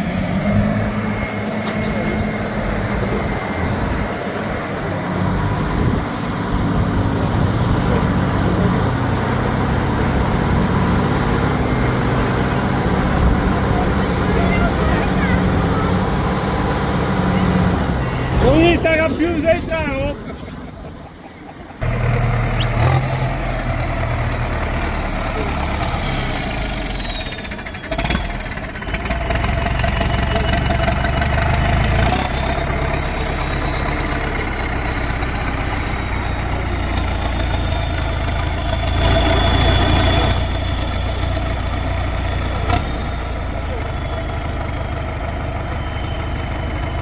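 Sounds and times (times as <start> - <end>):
heavy diesel engines running: 0.0 - 47.0.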